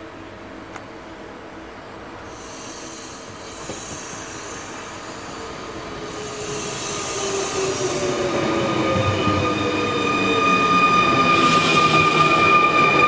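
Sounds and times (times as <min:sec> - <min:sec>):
electric train passing: 0:02.1 - 0:13.0
burst of hiss: 0:02.3 - 0:08.0, 0:11.3 - 0:12.8.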